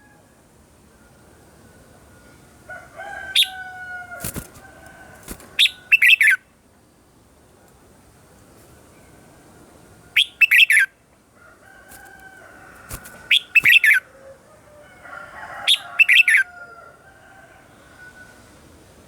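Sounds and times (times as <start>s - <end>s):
faint bird calls: 11.8s - 14.4s.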